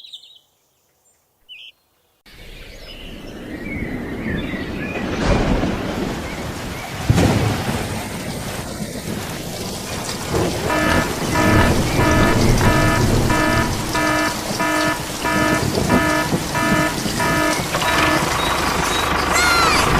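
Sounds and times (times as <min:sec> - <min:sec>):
rain-like hiss: 0:02.3 - 0:19.7
electronic alarm beeping: 0:10.6 - 0:18.6.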